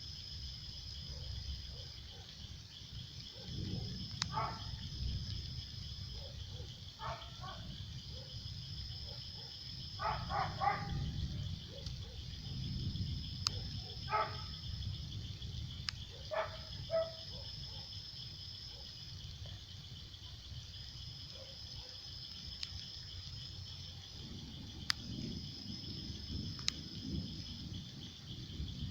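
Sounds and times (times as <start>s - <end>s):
insects chirping trill: 0.0s - 28.9s
distant dog barking: 1.0s - 2.4s, 3.3s - 4.8s, 6.0s - 12.7s, 13.4s - 14.7s, 16.0s - 19.1s, 21.2s - 22.2s.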